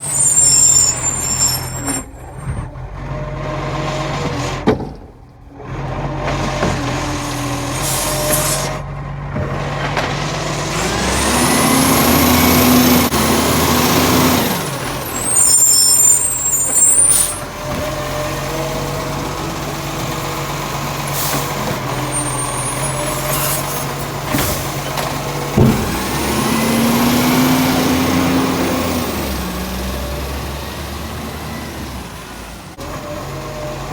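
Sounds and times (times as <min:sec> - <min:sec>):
diesel truck engine revving: 0:00.0 - 0:33.9
air brake hisses: 0:07.3 - 0:08.8, 0:21.1 - 0:21.6, 0:22.3 - 0:24.8.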